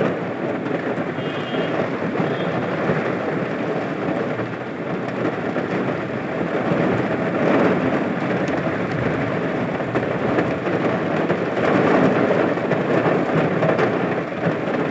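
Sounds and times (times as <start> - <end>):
heavy rain in strong wind: 0.0 - 14.9.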